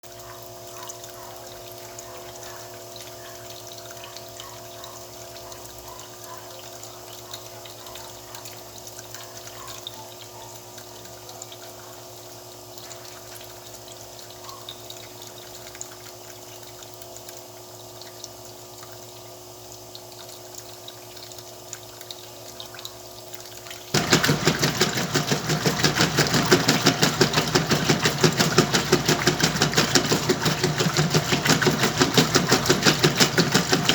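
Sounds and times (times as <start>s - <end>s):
washing machine filling with water: 0.0s - 33.9s
washing machine drum churning: 23.9s - 33.9s.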